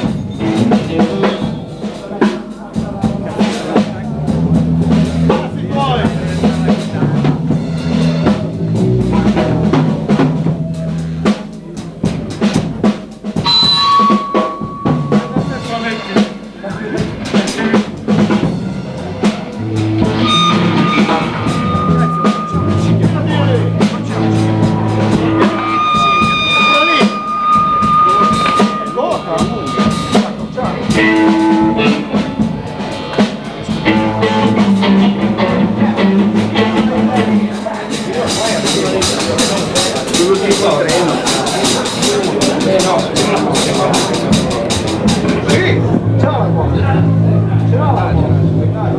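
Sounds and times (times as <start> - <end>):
sustained low notes: 0.0 - 11.3, 13.4 - 38.6, 42.9 - 48.9
drum kit playing: 0.0 - 48.9
live blues band: 0.0 - 48.9
held high note: 13.4 - 16.0, 18.6 - 35.3
electric guitar: 17.9 - 40.2.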